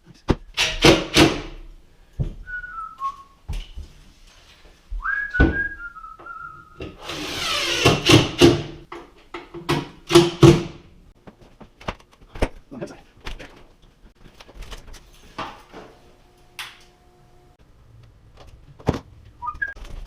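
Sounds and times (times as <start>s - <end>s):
person whistling: 2.4s - 3.4s, 5.0s - 6.8s, 19.4s - 19.8s.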